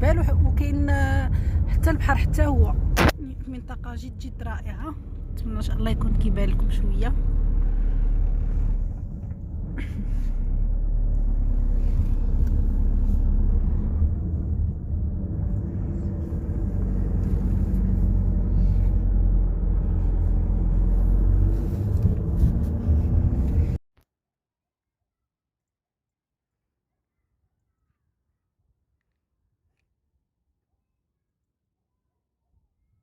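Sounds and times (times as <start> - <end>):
car cabin road and engine rumble: 0.0 - 23.8.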